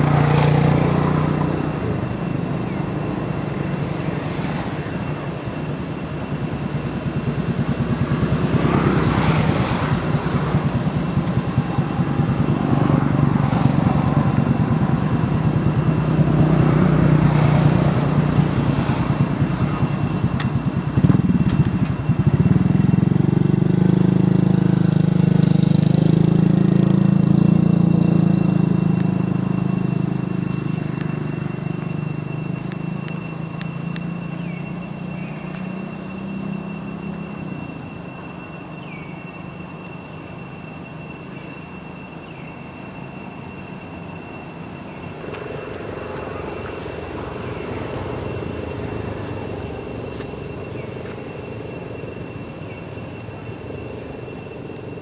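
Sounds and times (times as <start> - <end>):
motor engine rumbling: 0.0 - 55.0
steady high-pitched tones: 0.0 - 55.0.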